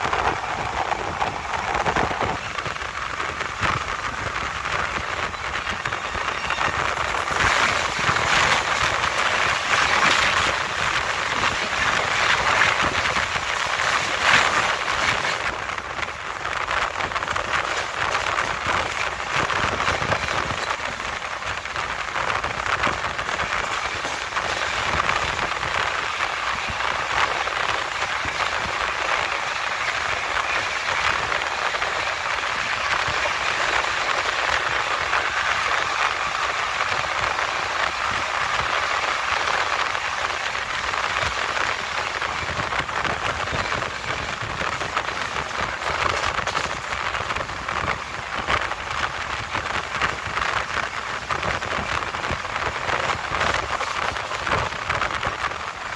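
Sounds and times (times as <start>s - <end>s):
wind rushing: 0.0s - 41.1s
freight train passing: 0.0s - 51.3s
train wheels on rails: 0.0s - 55.9s.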